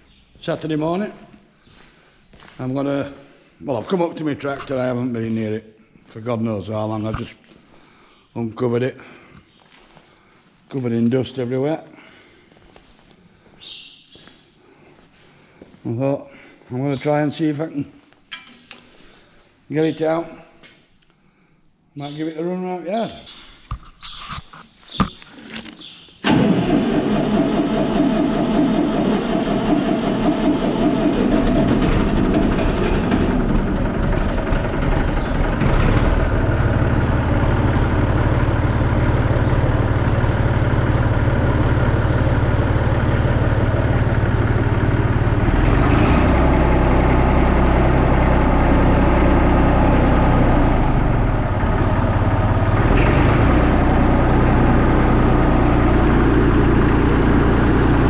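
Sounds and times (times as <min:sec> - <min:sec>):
tractor diesel engine starting: 0:26.2 - 0:58.0
engine knocks: 0:26.3 - 0:58.0.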